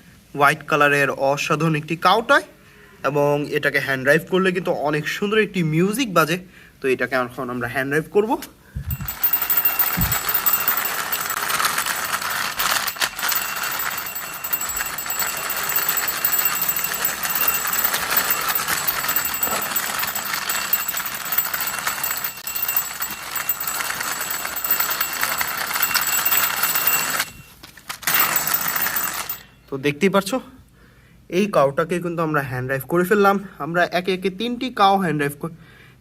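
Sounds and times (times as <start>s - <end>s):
toy mechanism rattling: 8.8s - 29.5s
toy music playing: 8.9s - 29.5s.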